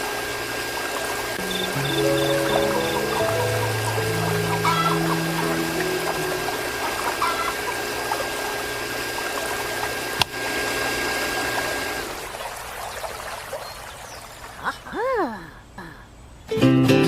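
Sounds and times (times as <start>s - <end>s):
electric water pump humming: 0.0s - 12.6s
water pouring and splashing: 5.5s - 14.8s.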